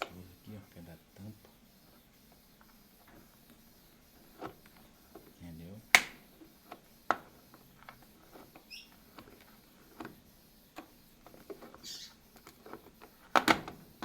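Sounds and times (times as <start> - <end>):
brief squeak: 11.8 - 12.2.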